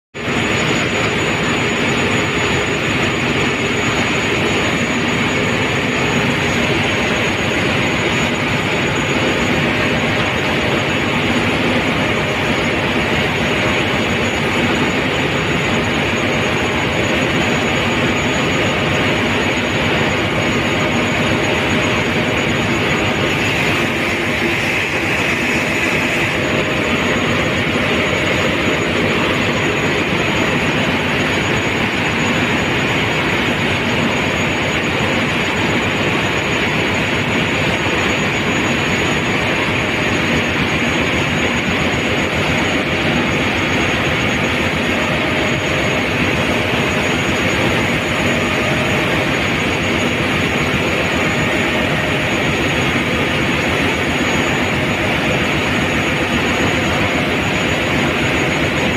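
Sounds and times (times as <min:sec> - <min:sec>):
engine room machinery noise: 0:00.1 - 0:58.9
thin high whine: 0:00.2 - 0:58.9.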